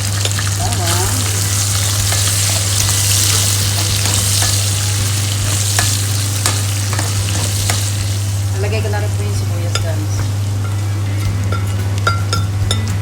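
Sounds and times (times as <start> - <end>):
garlic sizzling in oil: 0.0 - 13.0
spatula clicking in pan: 5.7 - 8.0.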